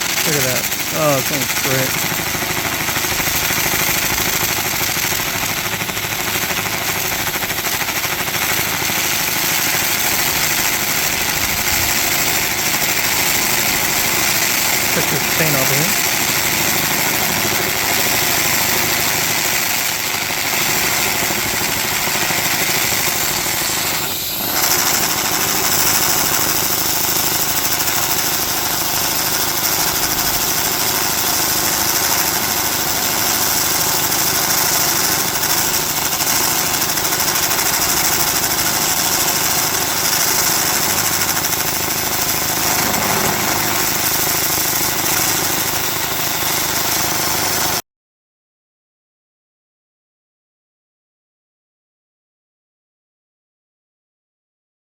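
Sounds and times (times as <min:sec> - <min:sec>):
laser cleaner hissing: 0:00.0 - 0:05.9, 0:22.4 - 0:27.4, 0:38.2 - 0:45.4.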